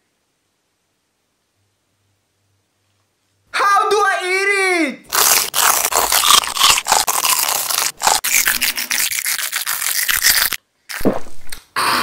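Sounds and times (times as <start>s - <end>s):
crunching and chewing snack: 5.1s - 11.1s.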